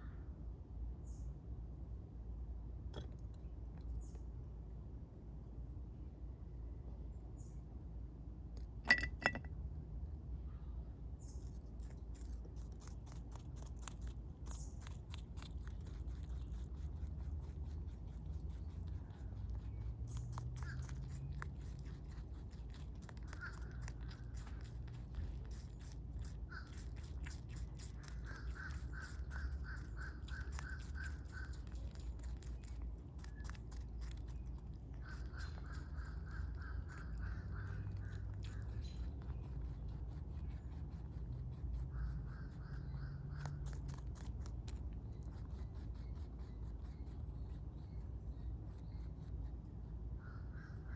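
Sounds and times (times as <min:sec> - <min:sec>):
rabbit chewing: 0:11.0 - 0:50.9.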